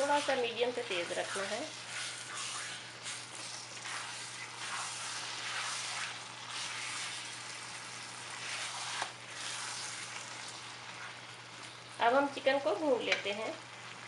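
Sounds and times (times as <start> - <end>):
spatula stirring in wok: 0.0 - 11.3
chicken sizzling in oil: 0.0 - 14.0.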